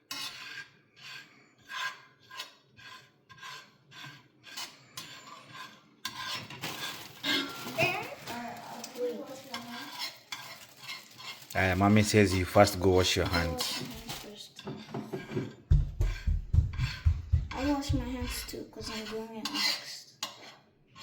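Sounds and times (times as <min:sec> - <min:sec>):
metal spoon scraping frying pan: 0:00.0 - 0:21.0
scraping and clatter: 0:00.1 - 0:21.0.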